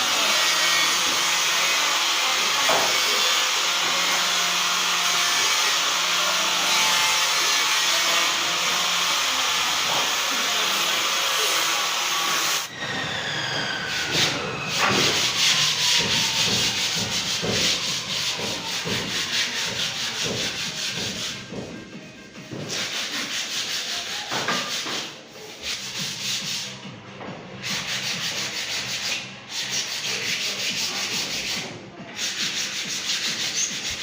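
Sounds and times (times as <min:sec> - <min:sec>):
wood being sanded: 0:00.0 - 0:26.8, 0:27.6 - 0:34.0
falling whine: 0:12.7 - 0:19.6.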